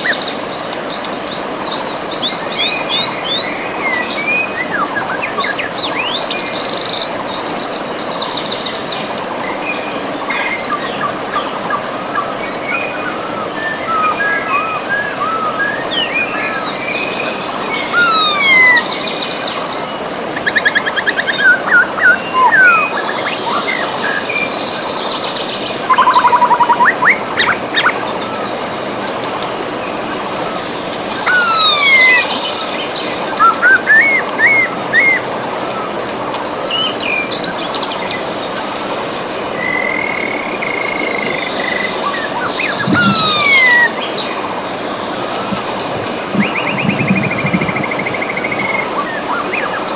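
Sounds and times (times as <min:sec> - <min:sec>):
birds singing: 0:00.0 - 0:49.9
river rushing: 0:00.0 - 0:49.9
fast buzzy bird trill: 0:31.2 - 0:32.4, 0:42.5 - 0:44.0.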